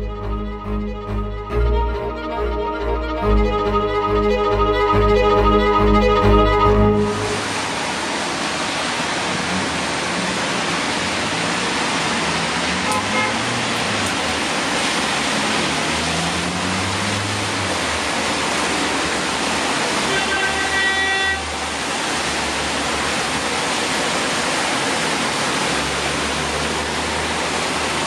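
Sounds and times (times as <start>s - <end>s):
pitched tone: 0.0s - 7.7s
traffic rumbling on wet road: 5.8s - 28.0s
rain hissing on a street: 7.2s - 28.0s.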